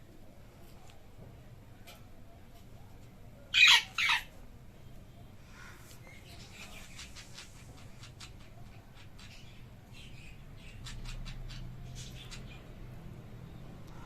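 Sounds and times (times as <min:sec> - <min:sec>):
bird chirping: 0:04.8 - 0:13.8.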